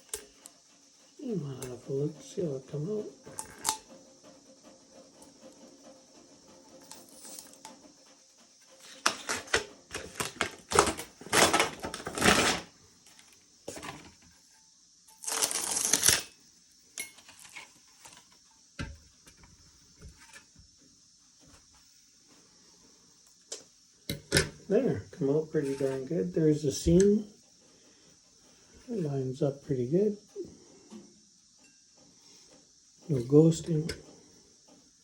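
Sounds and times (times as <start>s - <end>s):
shrink wrap crinkling and tearing: 9.0s - 12.7s, 15.2s - 16.3s.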